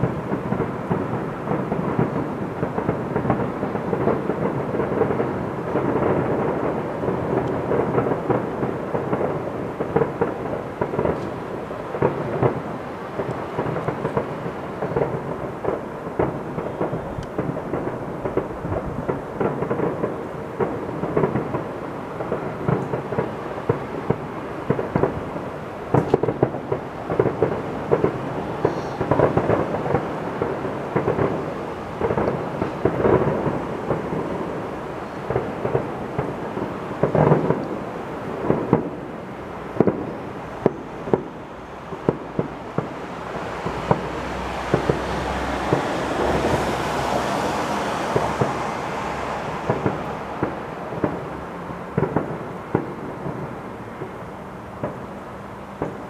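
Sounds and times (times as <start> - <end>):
firework shells bursting: 0.0 - 54.2
fireworks rumble: 0.0 - 56.0.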